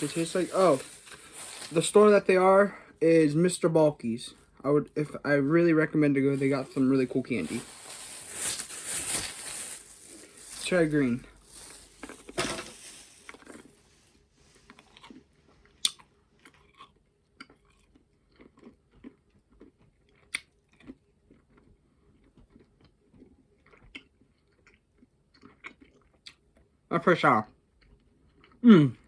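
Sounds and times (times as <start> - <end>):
mouth chewing clicks and smacks: 15.8 - 26.8.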